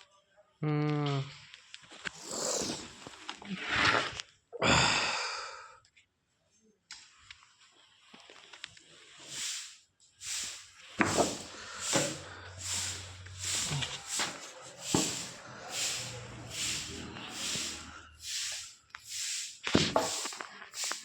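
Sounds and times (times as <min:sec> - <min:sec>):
hand tool rasping wood: 0:10.4 - 0:18.7.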